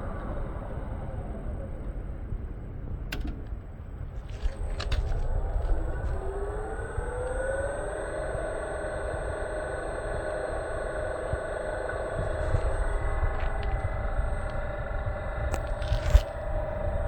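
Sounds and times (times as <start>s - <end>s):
low rumble: 0.0s - 17.0s
electric motor whine: 4.1s - 17.0s.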